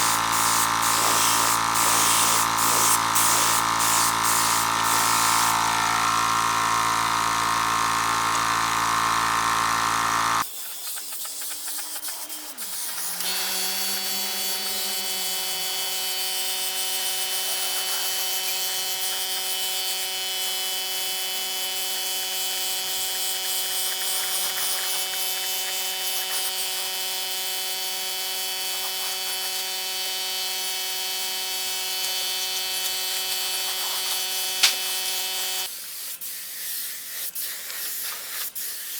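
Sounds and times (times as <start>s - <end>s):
electric power tools running: 0.0s - 10.4s, 12.5s - 35.7s
high steady motor hum: 0.0s - 10.4s, 12.6s - 35.7s.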